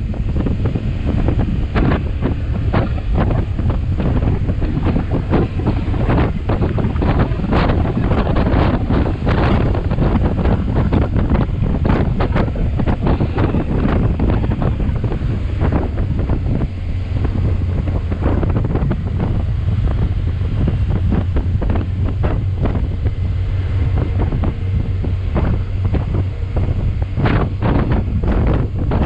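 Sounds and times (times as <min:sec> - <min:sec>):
motorcycle engine drone: 0:00.0 - 0:29.0
wind buffeting microphone: 0:00.0 - 0:29.0.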